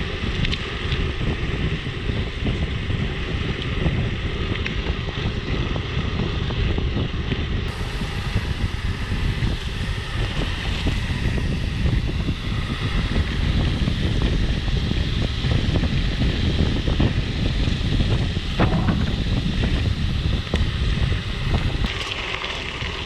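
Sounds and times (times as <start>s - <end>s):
wind rush on microphone: 0.0s - 23.0s
bike frame rattling: 11.3s - 23.0s.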